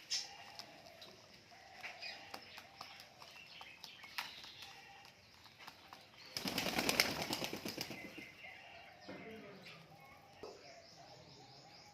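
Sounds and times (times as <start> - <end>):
pigeon flapping wings: 6.4 - 8.2.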